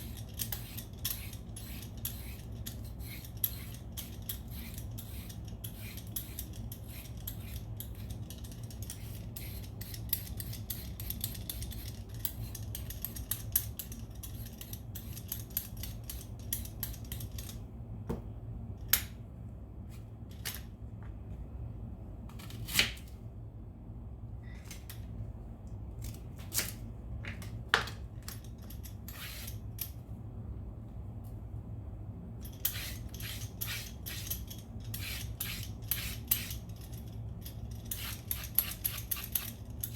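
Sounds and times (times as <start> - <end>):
vegetable peeler scraping: 0.0 - 13.2, 32.6 - 36.6
steady low hum: 0.0 - 39.9.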